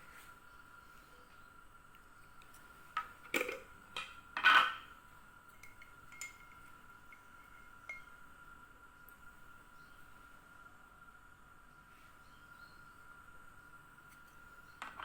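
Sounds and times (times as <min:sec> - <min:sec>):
faint high hum: 0:00.0 - 0:15.0
dishes and utensils clattering: 0:03.4 - 0:04.9, 0:05.6 - 0:08.1.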